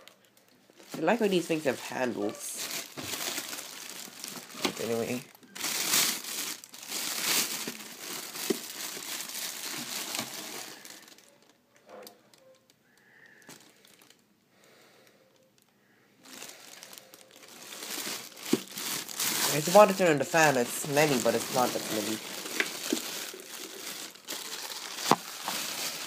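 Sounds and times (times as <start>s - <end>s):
packaging rustling and crinkling: 0.0s - 11.6s, 13.4s - 14.2s, 15.6s - 26.0s.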